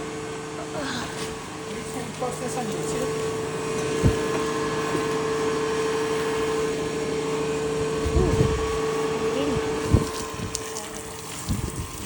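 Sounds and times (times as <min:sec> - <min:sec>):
steady whine: 0:00.0 - 0:12.0.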